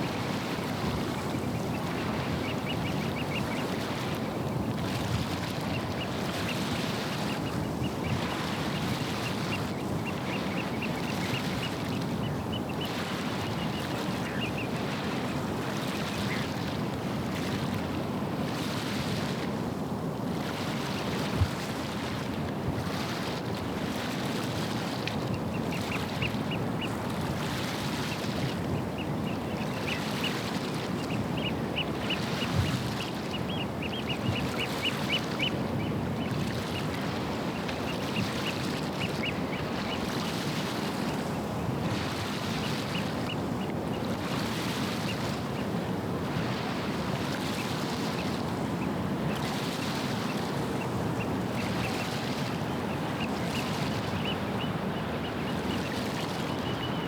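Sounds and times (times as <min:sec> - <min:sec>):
wind: 0:00.0 - 0:57.0
rushing water: 0:44.1 - 0:57.0.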